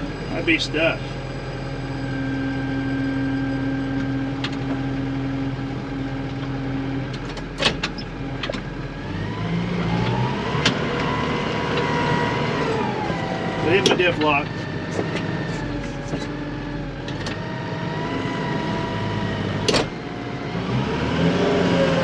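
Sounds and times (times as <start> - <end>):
rising whine: 0.0 - 6.7
tractor engine running under load: 0.0 - 20.7.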